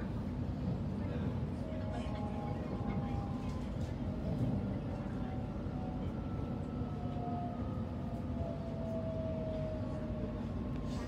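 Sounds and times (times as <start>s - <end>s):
train carriage rumble: 0.0s - 11.0s.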